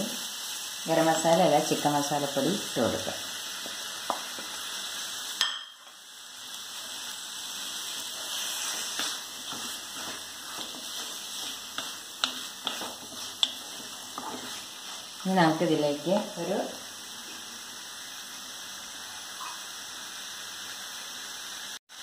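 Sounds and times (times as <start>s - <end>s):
meat sizzling in a pan: 0.0s - 22.0s
spatula tapping on a pan: 4.0s - 4.5s, 5.4s - 5.9s
wooden spatula scraping a pan: 6.8s - 16.6s.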